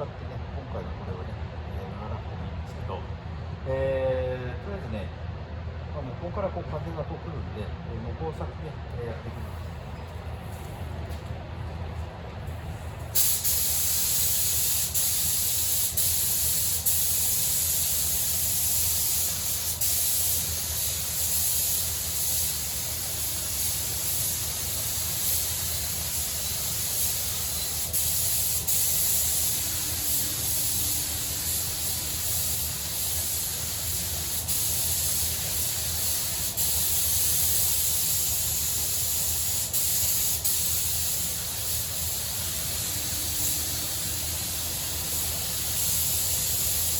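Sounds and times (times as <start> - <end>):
paint spray gun hissing: 13.2 - 46.9.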